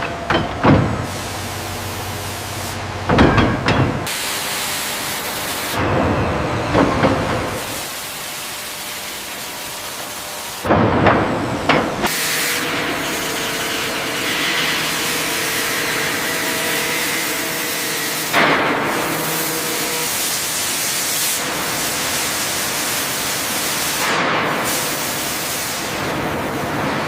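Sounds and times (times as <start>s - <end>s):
loud steady hiss: 0.9s - 3.4s, 4.0s - 5.8s, 11.7s - 27.0s.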